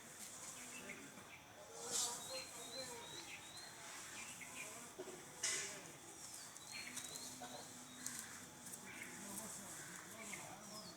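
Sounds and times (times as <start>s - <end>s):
faint small-bird chirps: 6.4s - 8.3s.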